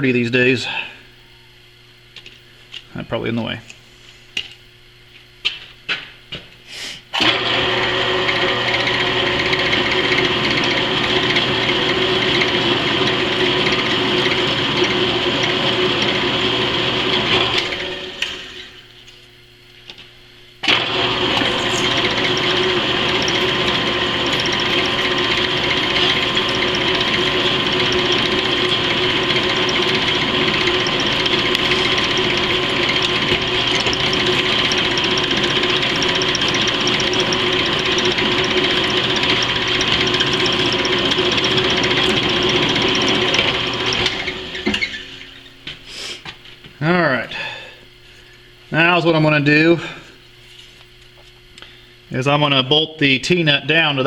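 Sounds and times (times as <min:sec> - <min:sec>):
power drill drilling steel: 0:07.2 - 0:18.8, 0:20.6 - 0:45.4.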